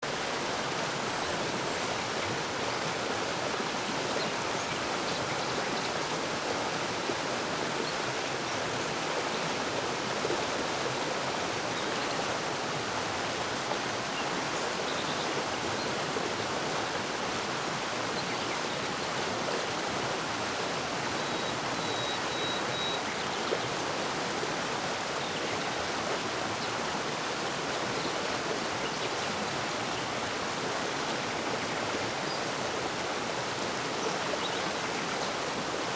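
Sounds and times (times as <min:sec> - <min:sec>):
stream flowing: 0:00.0 - 0:35.9
faint bird chirps: 0:21.2 - 0:23.4.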